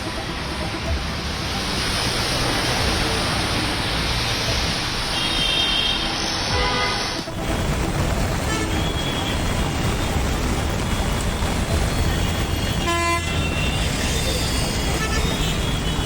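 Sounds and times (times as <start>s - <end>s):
heavy rain: 0.0s - 16.0s
road traffic: 0.0s - 16.0s.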